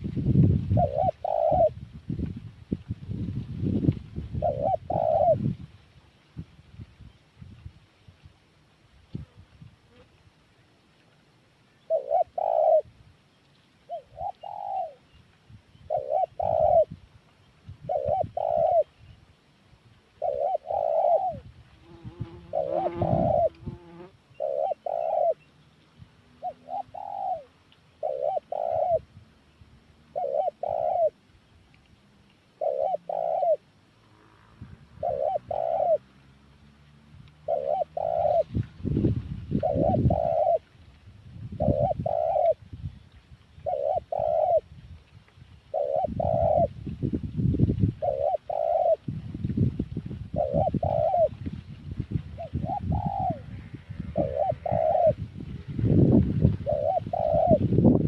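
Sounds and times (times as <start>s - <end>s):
dove cooing: 0.7s - 1.8s, 4.3s - 5.5s, 11.8s - 12.9s, 13.9s - 15.1s, 15.8s - 17.0s, 17.8s - 19.0s, 20.2s - 25.5s, 26.3s - 29.2s, 30.0s - 31.2s, 32.5s - 36.1s, 37.4s - 38.6s, 39.5s - 40.7s, 41.5s - 42.7s, 43.6s - 44.7s, 45.7s - 46.8s, 47.9s - 49.2s, 50.3s - 51.5s, 52.3s - 58.0s.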